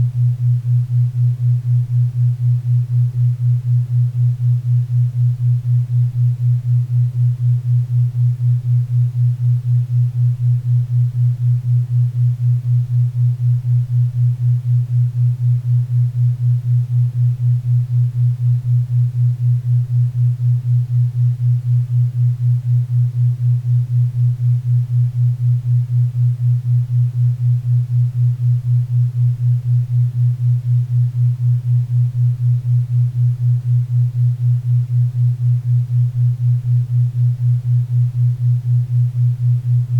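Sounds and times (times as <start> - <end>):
low pulsing hum tone: 0.0 - 39.9.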